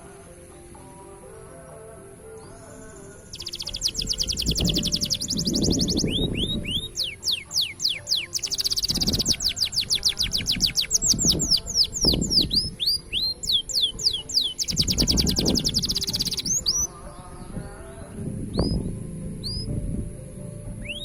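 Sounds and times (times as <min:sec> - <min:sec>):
canary singing: 0:00.0 - 0:21.0.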